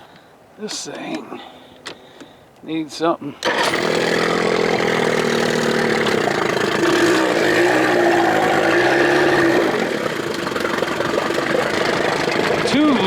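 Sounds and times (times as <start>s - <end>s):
outboard motor running: 3.4s - 13.0s.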